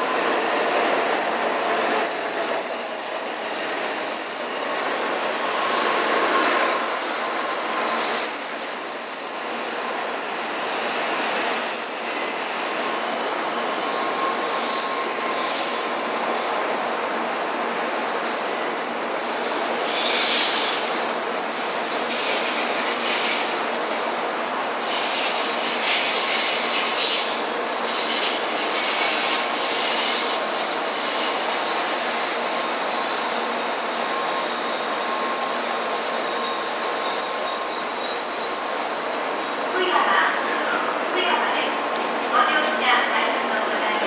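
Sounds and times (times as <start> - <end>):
train rumbling: 0.0 - 44.0
high-pitched brake squeal: 1.1 - 8.3, 9.7 - 12.4, 13.8 - 16.2, 19.7 - 21.1, 24.8 - 40.9.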